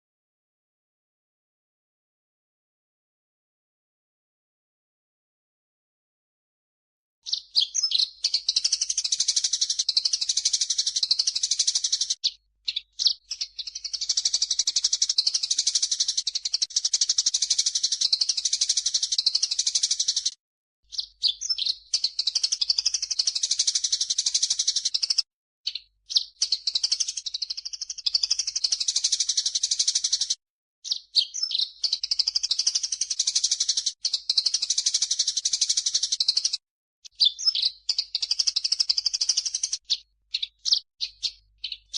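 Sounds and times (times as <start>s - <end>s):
birds chirping and chattering: 7.3s - 20.3s, 37.2s - 41.9s.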